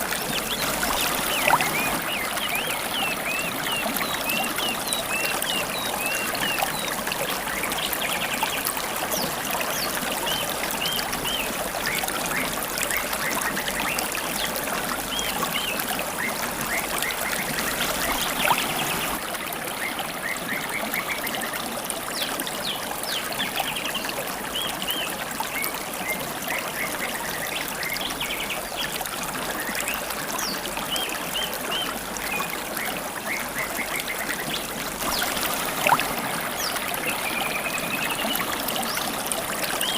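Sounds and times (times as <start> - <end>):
river water babbling: 0.0 - 39.9
songbirds chirping: 0.1 - 11.6.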